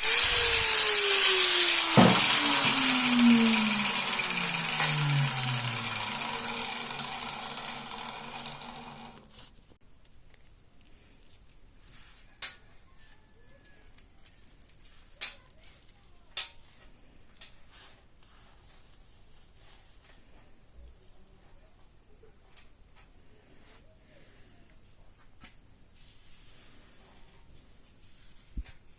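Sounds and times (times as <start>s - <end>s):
power tool motor: 0.0s - 9.4s.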